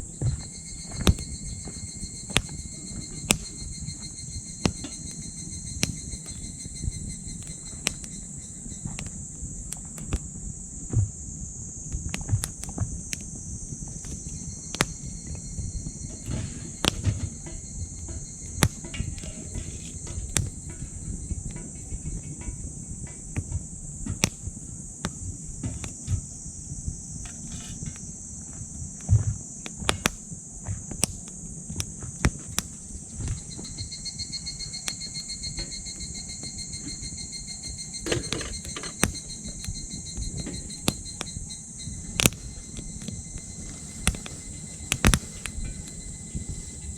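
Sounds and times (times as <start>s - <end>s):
high insect trill: 0.0s - 46.9s
lower pulsing insect trill: 0.0s - 46.9s
wood fire crackling and popping: 0.0s - 46.9s.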